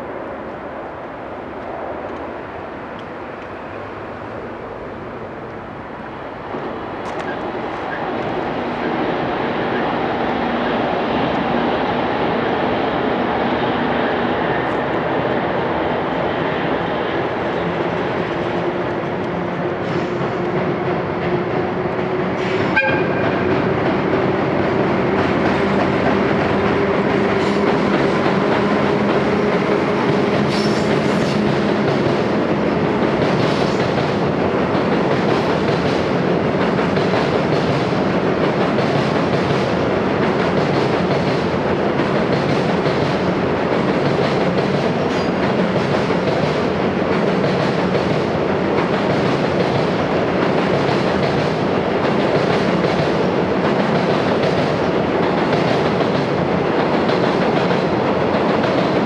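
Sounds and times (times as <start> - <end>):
freight train wheels clattering: 18.6 - 59.0.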